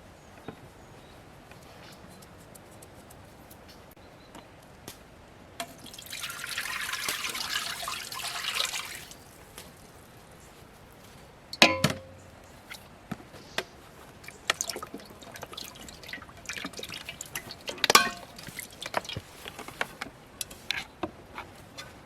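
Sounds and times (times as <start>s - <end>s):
liquid dripping and pouring: 5.6s - 9.8s, 14.2s - 19.8s
kitchenware clinking: 11.6s - 12.3s, 14.5s - 19.2s.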